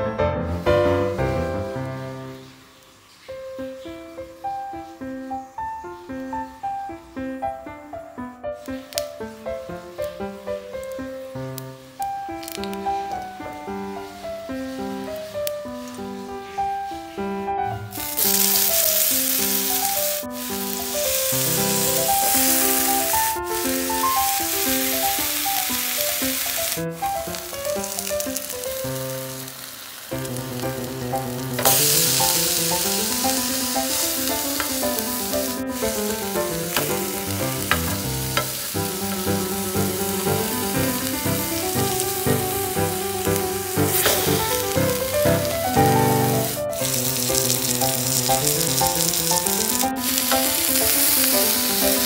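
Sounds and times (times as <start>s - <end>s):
fruit sizzling in oil: 0.5s - 52.0s
melodic tune: 30.4s - 52.0s.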